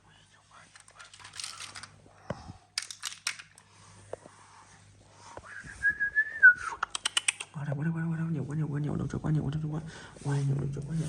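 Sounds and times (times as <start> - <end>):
plastic clicks: 0.8 - 1.9, 2.7 - 3.6
plastic packaging crinkling: 0.8 - 1.9.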